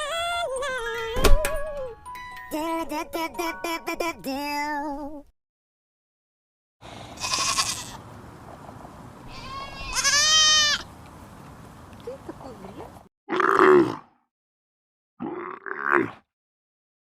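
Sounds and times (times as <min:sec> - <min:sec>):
music jingle: 0:01.7 - 0:04.8
sheep bleating: 0:07.2 - 0:08.0, 0:09.3 - 0:10.8.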